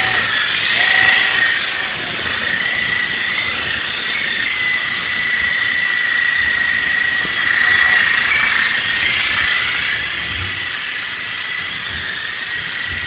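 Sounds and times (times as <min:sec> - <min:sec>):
toy helicopter rotors whining: 0:00.0 - 0:13.0.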